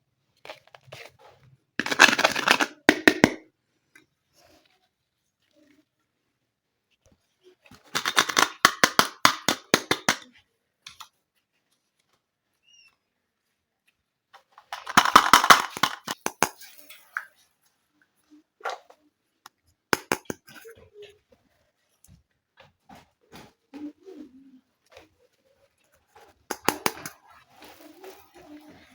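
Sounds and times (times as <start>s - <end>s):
plastic toy pieces clicking: 1.8s - 3.4s, 7.9s - 10.3s, 14.6s - 16.6s, 20.0s - 20.5s, 26.5s - 27.2s.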